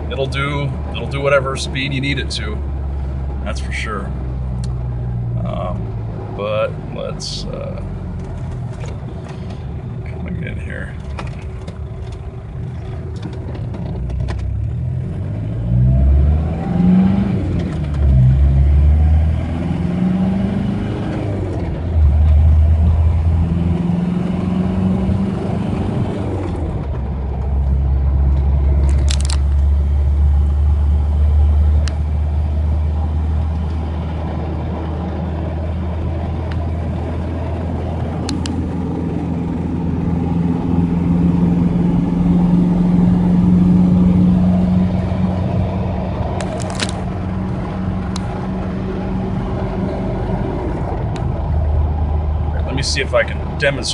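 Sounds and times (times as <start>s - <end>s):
diesel engine accelerating: 0.0s - 53.9s.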